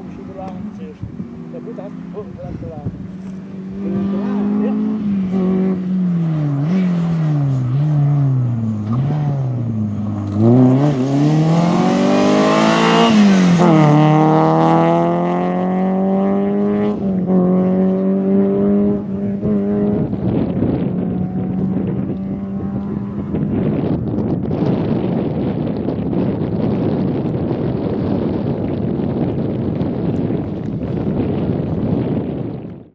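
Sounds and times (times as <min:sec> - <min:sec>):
rally car engine passing: 0:00.0 - 0:25.3.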